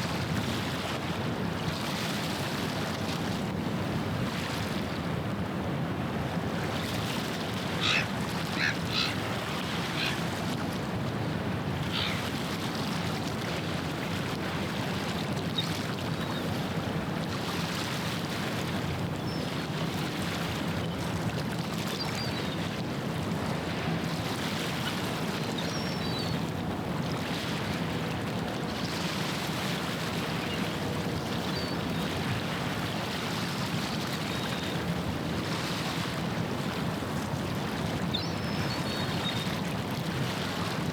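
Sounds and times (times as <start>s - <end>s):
water noise: 6.8s - 13.5s
bird calls: 7.7s - 10.3s, 11.9s - 12.2s.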